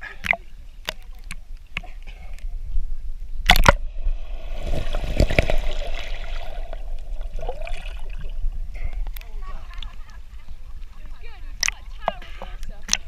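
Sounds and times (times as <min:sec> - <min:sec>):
water splashing and running: 0:03.5 - 0:13.0.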